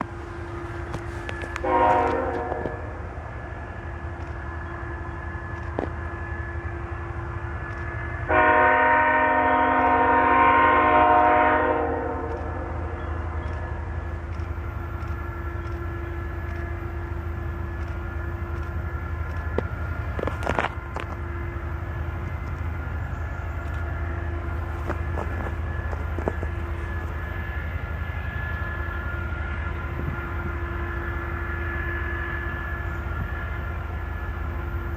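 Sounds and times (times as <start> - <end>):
locomotive engine rumbling: 0.0 - 34.9
locomotive air horn blast: 0.8 - 3.1, 8.3 - 13.0.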